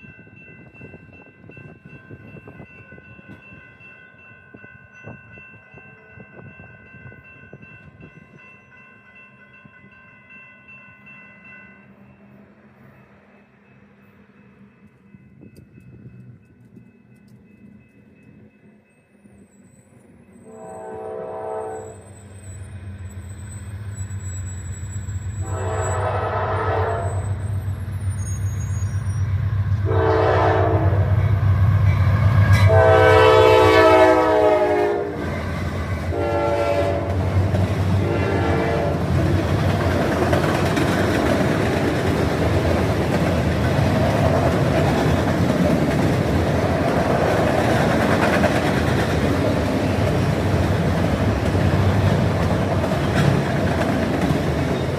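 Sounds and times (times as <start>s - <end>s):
diesel locomotive engine drone: 10.3s - 54.9s
train air horn blasts: 20.4s - 22.2s, 25.3s - 27.5s, 29.8s - 31.3s, 32.5s - 35.3s, 36.1s - 37.4s, 38.0s - 39.1s
train wheels clattering on rail: 27.1s - 54.9s.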